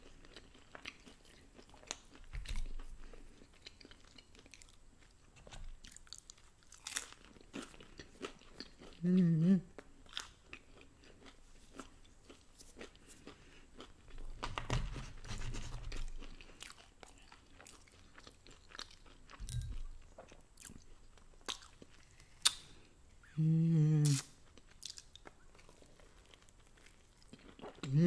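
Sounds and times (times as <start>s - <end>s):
chewing and crunching food: 0.0s - 23.0s, 24.0s - 28.0s
mouth clicks and smacks: 24.0s - 25.0s.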